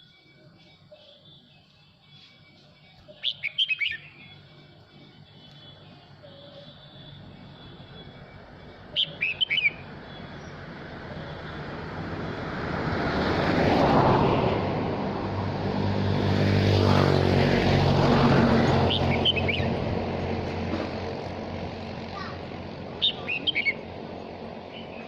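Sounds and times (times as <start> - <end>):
bird chirping: 0.0 - 11.6, 18.8 - 19.8, 23.0 - 23.9.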